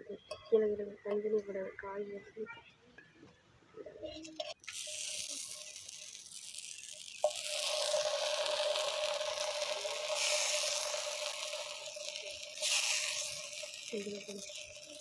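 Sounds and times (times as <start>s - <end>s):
slices sizzling in oil: 4.4s - 15.0s.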